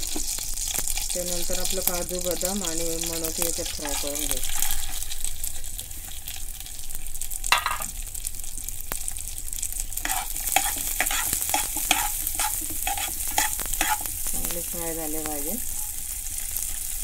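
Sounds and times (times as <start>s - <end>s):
nuts sizzling in hot fat: 0.0s - 17.0s
steel spoon scraping pan: 3.3s - 6.4s, 10.0s - 14.2s.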